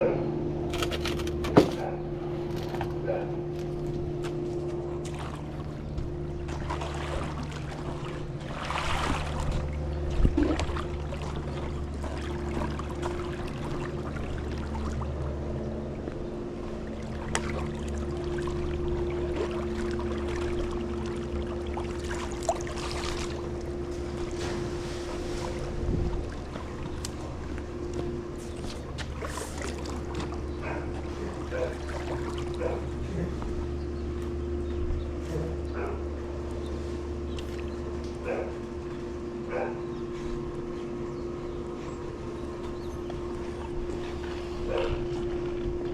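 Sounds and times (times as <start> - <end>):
motor hum: 0.0 - 45.9
net splashing through water: 6.5 - 15.0, 17.1 - 26.8.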